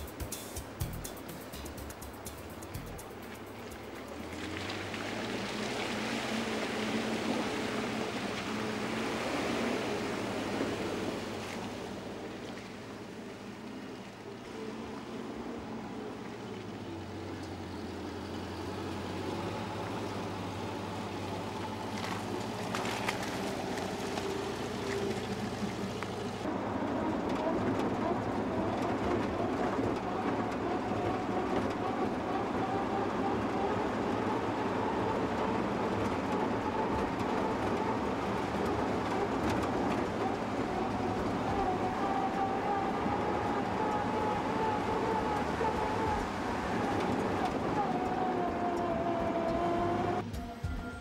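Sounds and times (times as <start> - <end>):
car engine running: 0.0 - 5.6
rising whine: 18.4 - 51.0.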